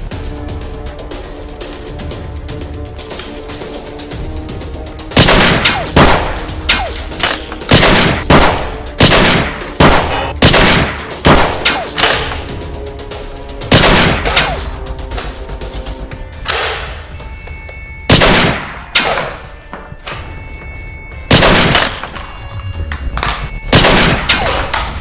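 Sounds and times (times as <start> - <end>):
background music: 0.0 - 25.0
gunshots: 5.1 - 12.5, 13.6 - 14.8, 18.1 - 19.4, 21.3 - 22.2, 23.7 - 25.0.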